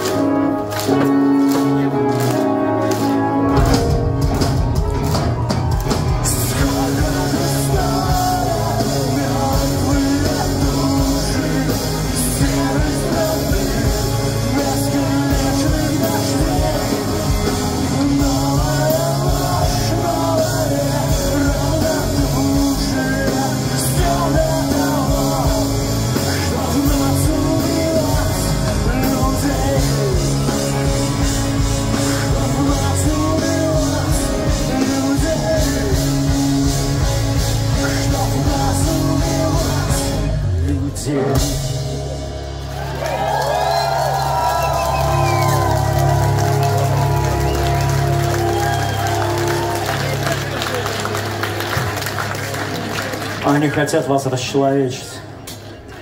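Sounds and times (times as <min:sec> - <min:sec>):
live rock band playing: 0:00.0 - 0:56.0
voices singing melody: 0:06.1 - 0:41.6.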